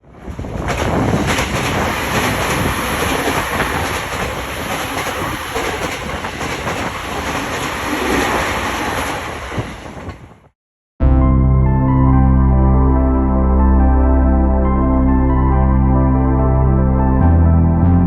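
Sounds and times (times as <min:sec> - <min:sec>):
electric train passing: 0:00.1 - 0:10.1
wheels clacking over rail joints: 0:00.1 - 0:10.3.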